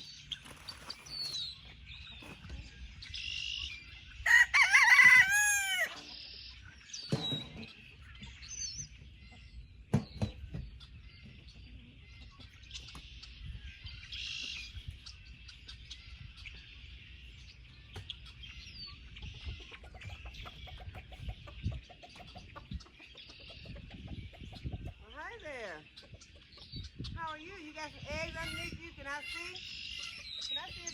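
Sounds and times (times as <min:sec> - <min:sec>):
chickens clucking: 0:00.0 - 0:30.9
rooster crowing: 0:04.2 - 0:06.0.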